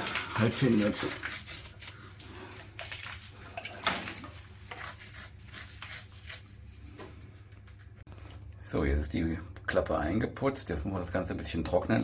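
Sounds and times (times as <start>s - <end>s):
wet dabbing and scraping on masonry: 0.0s - 8.0s.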